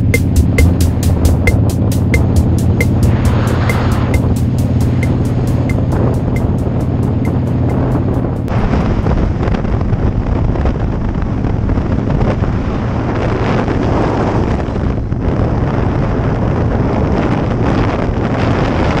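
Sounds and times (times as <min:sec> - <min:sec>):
motorcycle engine drone: 0:00.0 - 0:18.8
wind buffeting microphone: 0:07.8 - 0:19.0.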